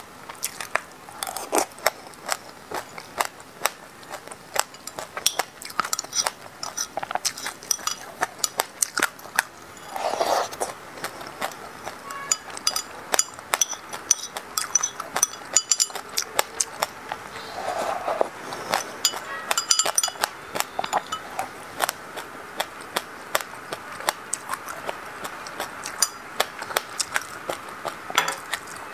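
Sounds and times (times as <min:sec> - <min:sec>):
seeds crunching while chewed: 0:00.0 - 0:28.9
metal spoon clinking on glass bowl: 0:04.7 - 0:09.0, 0:12.1 - 0:16.4, 0:18.8 - 0:21.4, 0:26.0 - 0:26.7, 0:28.1 - 0:28.5
slurping liquid from a spoon: 0:05.6 - 0:08.0, 0:09.6 - 0:12.9, 0:13.6 - 0:21.5.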